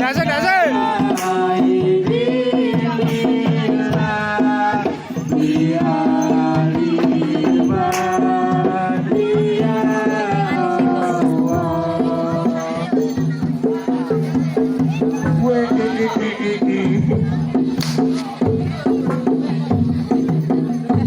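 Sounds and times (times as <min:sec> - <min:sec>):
sharp percussive strokes: 0:00.0 - 0:02.2, 0:17.7 - 0:20.4
hand drums beating: 0:00.0 - 0:21.0.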